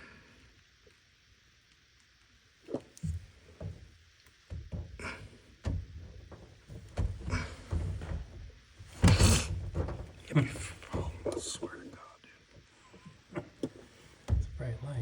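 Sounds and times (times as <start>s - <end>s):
rustling: 2.7s - 11.7s
thunks and knocks of tools: 3.0s - 11.4s, 13.4s - 14.6s.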